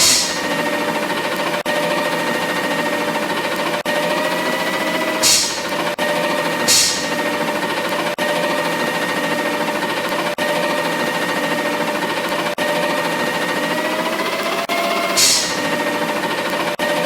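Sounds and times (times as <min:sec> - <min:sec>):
short hiss of air: 0:00.0 - 0:00.5, 0:05.2 - 0:05.7, 0:06.7 - 0:07.2, 0:15.2 - 0:15.6
garbage truck machinery running: 0:00.0 - 0:17.0.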